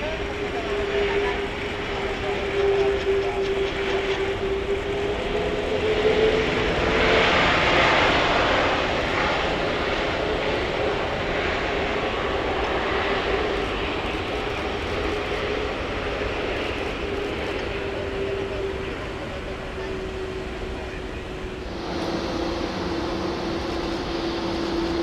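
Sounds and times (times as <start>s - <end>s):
jet engine noise: 0.0s - 25.0s
steady hum: 21.5s - 25.0s.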